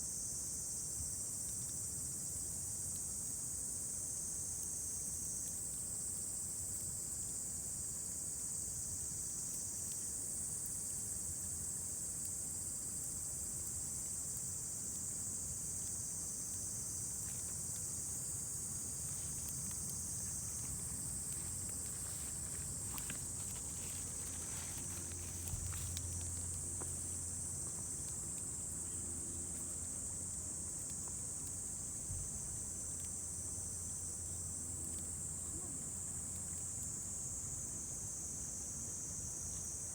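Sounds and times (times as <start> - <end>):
insect chorus: 0.0 - 39.9
campfire crackles: 11.5 - 35.7.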